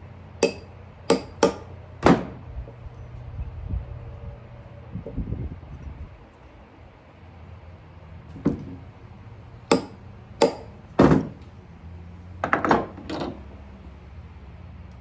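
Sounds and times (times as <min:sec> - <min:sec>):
hammer tapping on metal: 0:00.4 - 0:02.3, 0:09.7 - 0:11.2.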